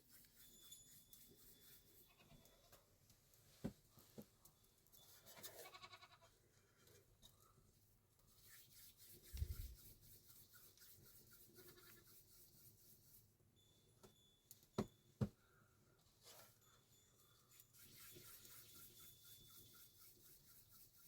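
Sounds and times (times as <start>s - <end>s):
faint animal bleating: 2.0s - 2.7s, 5.3s - 6.4s.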